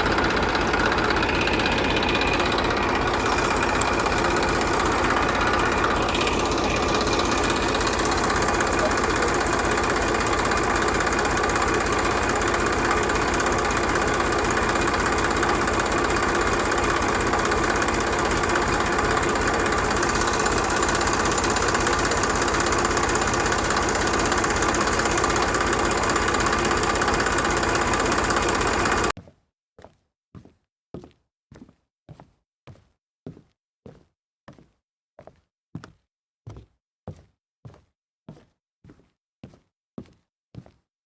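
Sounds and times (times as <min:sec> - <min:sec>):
tractor engine running: 0:00.0 - 0:29.1.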